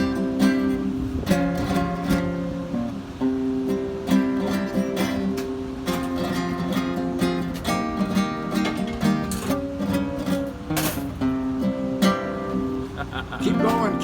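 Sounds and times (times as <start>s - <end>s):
flamenco acoustic guitar: 0.0s - 14.0s
sharp strummed guitar chords: 0.0s - 14.0s.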